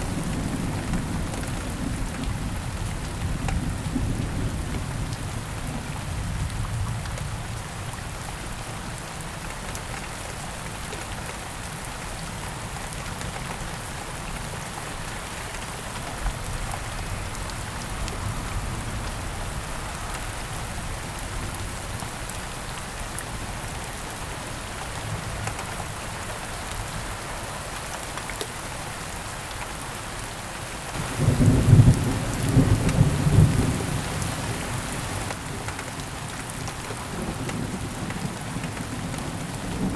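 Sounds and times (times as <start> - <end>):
heavy rain on foliage: 0.0 - 39.9
thunder rumbling: 31.0 - 35.2, 37.2 - 39.9.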